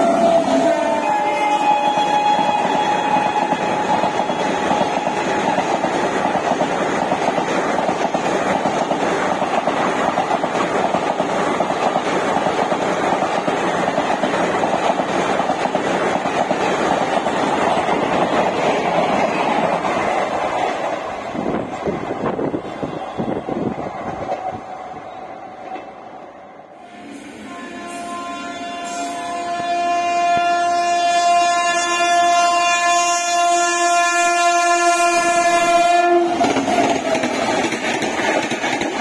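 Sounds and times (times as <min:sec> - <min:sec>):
locomotive horn: 0:00.0 - 0:05.6, 0:26.8 - 0:36.6
train coaches rushing past: 0:00.0 - 0:31.1, 0:34.9 - 0:39.0.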